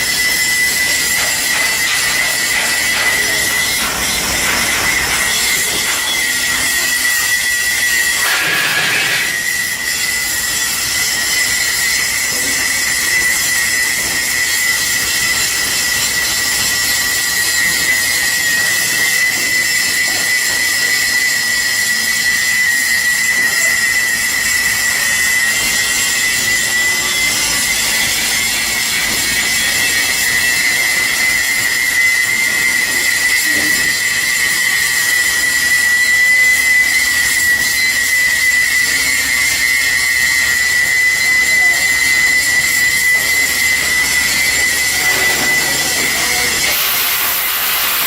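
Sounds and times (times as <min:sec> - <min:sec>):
high-pitched machine whine: 0:00.0 - 0:48.0
steady hissing: 0:46.2 - 0:48.0.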